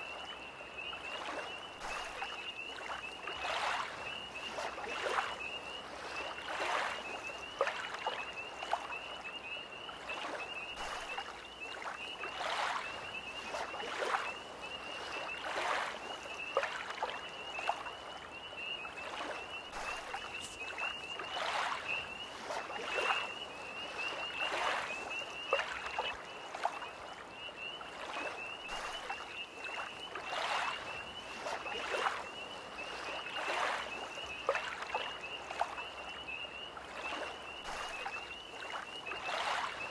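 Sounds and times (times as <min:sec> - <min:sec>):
tree frogs trilling chorus: 0:00.0 - 0:39.9
waves lapping at shore: 0:00.0 - 0:39.9.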